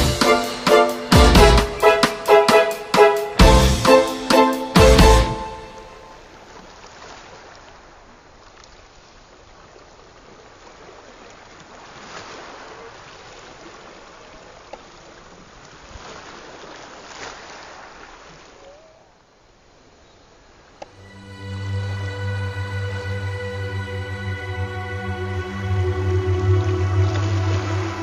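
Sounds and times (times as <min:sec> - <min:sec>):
small waves washing on shore: 0:05.7 - 0:21.2.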